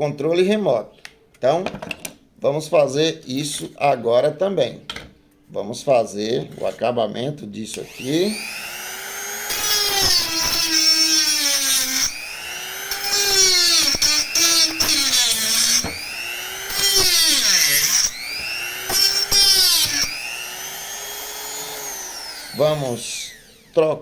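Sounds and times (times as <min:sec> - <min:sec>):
rotary tool grinding pipe: 0:07.8 - 0:23.7.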